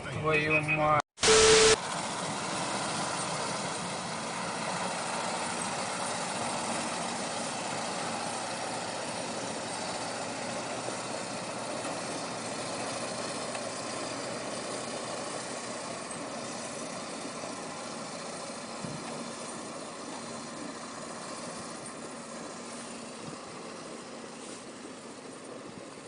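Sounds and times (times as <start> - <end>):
steady hiss: 1.2 - 1.8
vehicle engine idling: 1.2 - 26.0.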